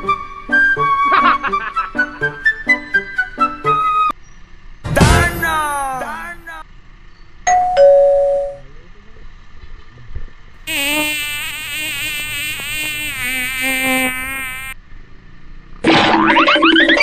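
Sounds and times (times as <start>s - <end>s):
wavering buzzing sound effect: 10.7s - 14.8s.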